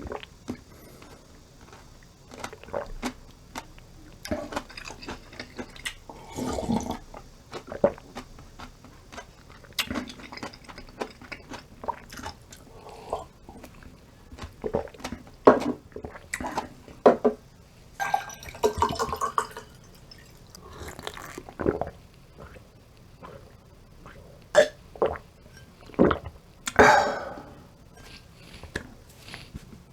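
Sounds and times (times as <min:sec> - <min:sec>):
chewing: 0:00.0 - 0:16.7, 0:18.8 - 0:22.6, 0:28.0 - 0:29.7
sipping and swallowing: 0:00.0 - 0:17.0, 0:18.0 - 0:29.5.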